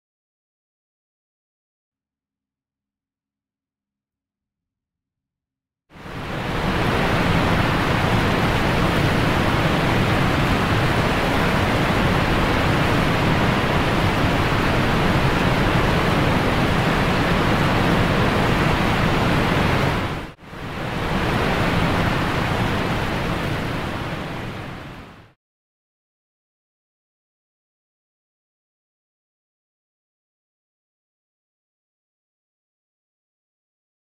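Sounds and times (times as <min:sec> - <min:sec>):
steady rushing noise: 0:06.0 - 0:25.4.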